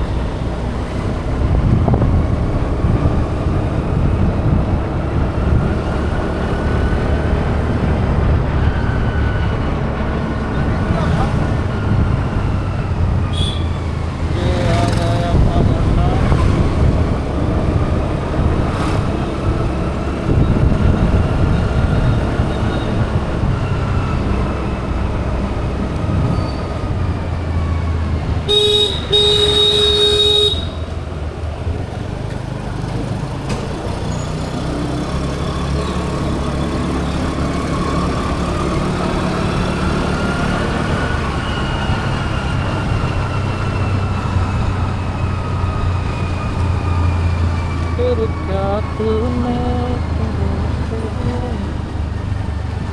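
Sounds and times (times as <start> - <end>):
road traffic: 0.0 - 52.9
vehicle horn: 13.2 - 13.9, 28.4 - 30.9.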